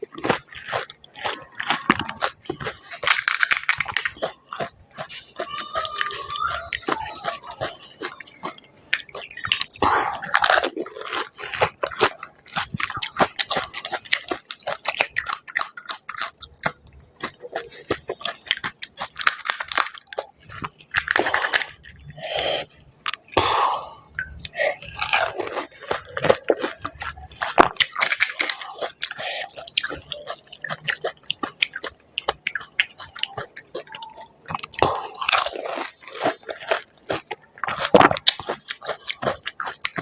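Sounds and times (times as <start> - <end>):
crunching and chewing: 0.0 - 40.0
breathy noises: 17.0 - 18.5, 19.7 - 27.3, 28.0 - 30.6.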